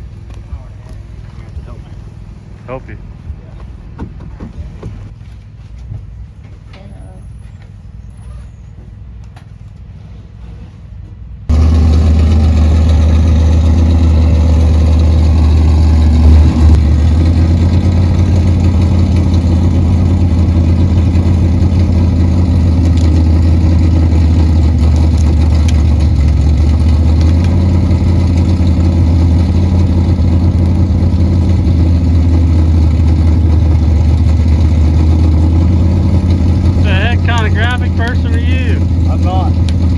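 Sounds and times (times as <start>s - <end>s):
engine idling loudly: 11.5s - 39.9s.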